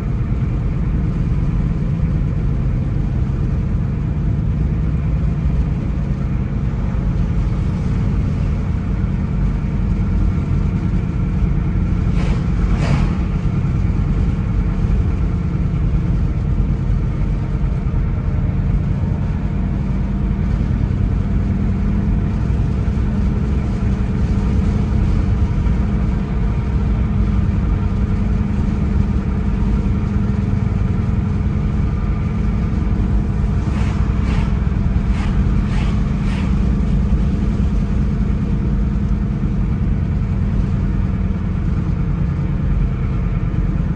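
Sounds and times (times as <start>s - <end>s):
car engine and tyres rumbling: 0.0s - 43.9s
brief sharp sounds: 12.0s - 14.4s, 33.2s - 37.2s.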